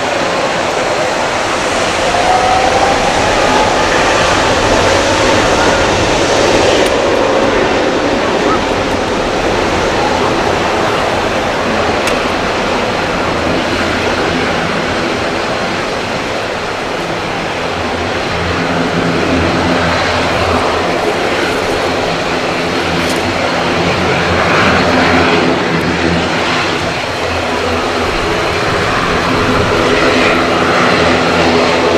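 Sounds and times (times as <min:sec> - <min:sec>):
jet engines running: 0:00.0 - 0:31.9.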